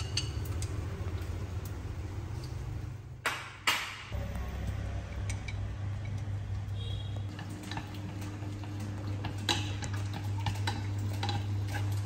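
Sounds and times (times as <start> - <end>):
low steady hum: 4.2 - 12.0.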